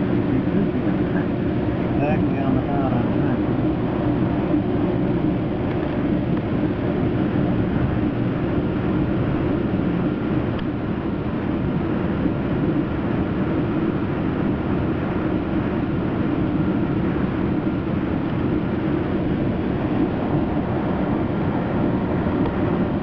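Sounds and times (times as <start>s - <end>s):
train interior rumble: 0.0s - 13.6s.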